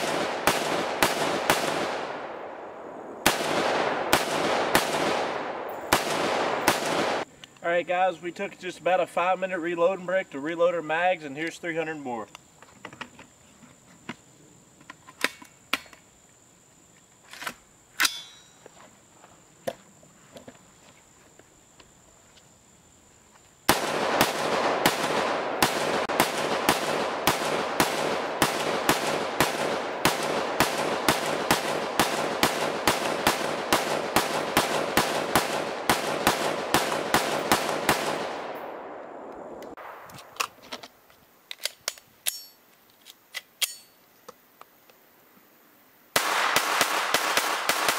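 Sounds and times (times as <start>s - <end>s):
rapid rifle shots: 0.0s - 2.2s, 3.2s - 7.3s, 23.7s - 38.9s, 46.2s - 47.9s
rifle handling clicks: 39.3s - 45.0s.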